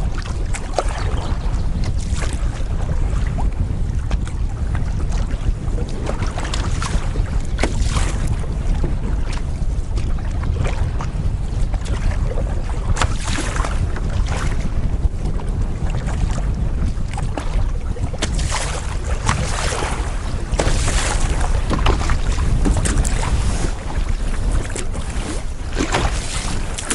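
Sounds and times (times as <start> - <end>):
water splashing against canoe: 0.0 - 26.9
wind buffeting microphone: 0.0 - 26.9.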